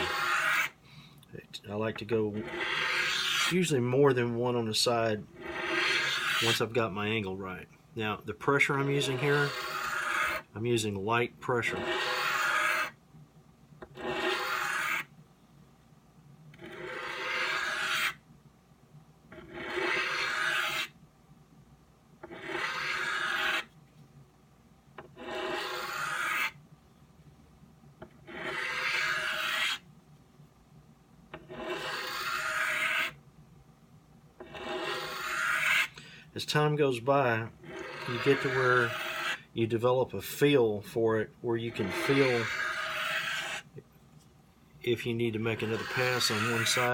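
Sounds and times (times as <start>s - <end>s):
knife rasping on sharpening stone: 14.0s - 14.8s, 16.7s - 18.0s, 19.4s - 20.9s, 22.3s - 23.6s, 25.2s - 26.5s, 31.4s - 33.1s, 34.4s - 35.8s, 37.6s - 39.3s, 45.6s - 46.9s.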